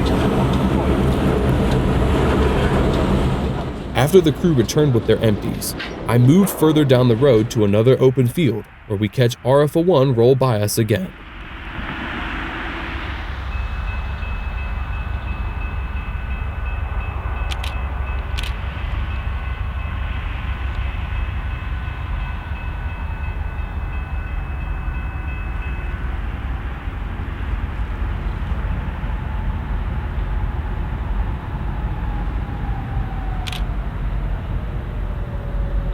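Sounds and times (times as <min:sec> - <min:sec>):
freight train rumbling past: 0:00.0 - 0:35.9
sharp clicks: 0:17.5 - 0:18.6, 0:33.4 - 0:33.7.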